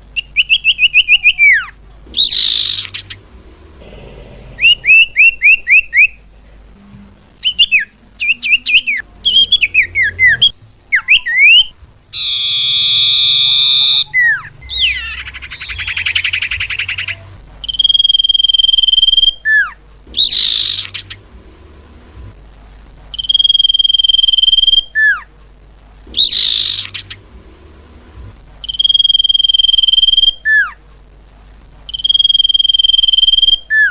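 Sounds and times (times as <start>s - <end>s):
downslurred bird whistles: 0.2s - 3.2s, 4.6s - 6.2s, 7.4s - 21.2s, 23.2s - 25.2s, 26.1s - 27.2s, 28.6s - 30.8s, 31.9s - 33.9s
long steady bird whistle: 0.2s - 3.2s, 4.6s - 6.2s, 7.4s - 21.2s, 23.1s - 25.3s, 26.1s - 27.2s, 28.6s - 30.8s, 31.9s - 33.9s
rasping bird trill: 0.2s - 3.3s, 4.5s - 6.2s, 7.4s - 21.3s, 26.1s - 27.3s
harsh buzzing bird call: 0.2s - 6.2s, 7.4s - 21.4s, 26.1s - 27.5s.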